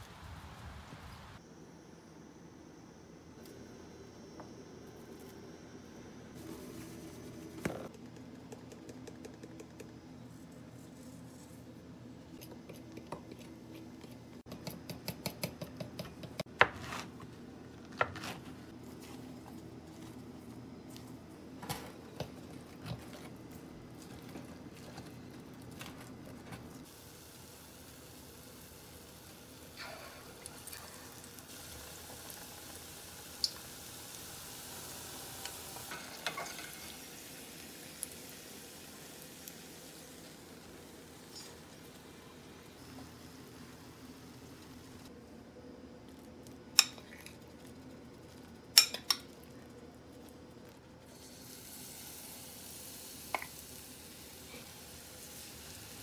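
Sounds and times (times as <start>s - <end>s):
oil sizzling deep-frying: 18.5s - 45.1s, 46.2s - 56.0s.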